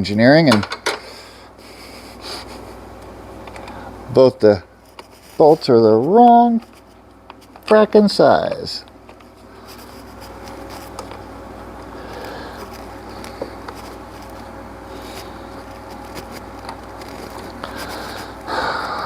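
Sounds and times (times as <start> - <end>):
low hum with faint whine: 0.0 - 19.0.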